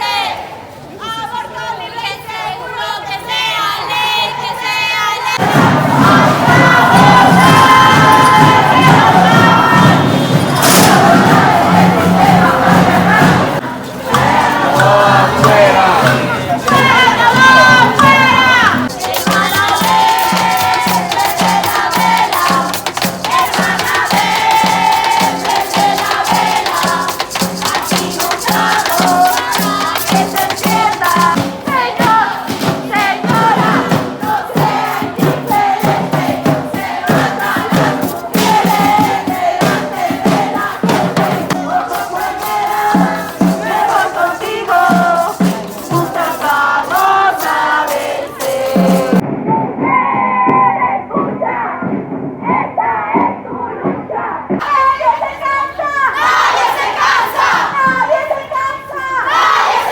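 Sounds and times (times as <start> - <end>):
women chanting: 0.0 - 49.2, 49.9 - 59.9
drum beating: 5.4 - 49.6, 56.3 - 58.4
rattles shaking: 18.9 - 31.7, 41.4 - 49.2.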